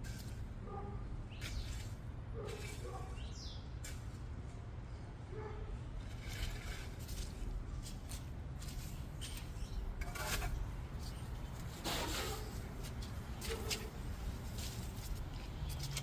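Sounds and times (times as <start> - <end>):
birds chirping: 1.2 - 1.8, 2.9 - 3.8, 8.9 - 10.0
scraping or rustling noises: 1.3 - 3.1, 6.0 - 16.0.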